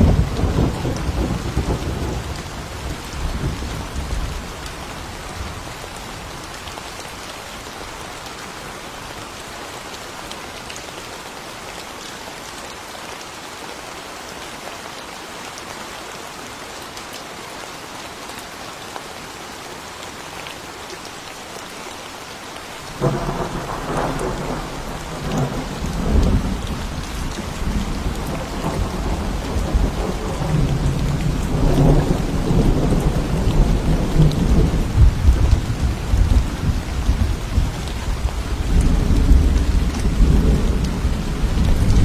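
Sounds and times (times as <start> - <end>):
thunderclap and rumbling thunder: 0.0 - 4.5, 23.0 - 42.0
steady rain: 0.0 - 42.0.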